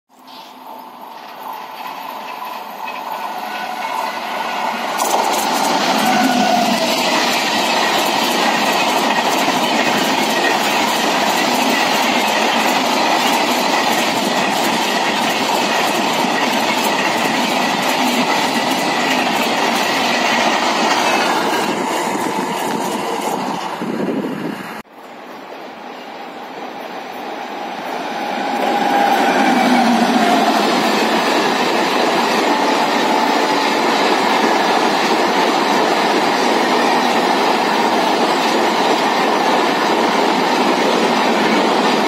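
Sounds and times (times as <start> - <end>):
train passing at speed: 0.2 - 42.0
wheels clacking over rail joints: 0.3 - 24.0.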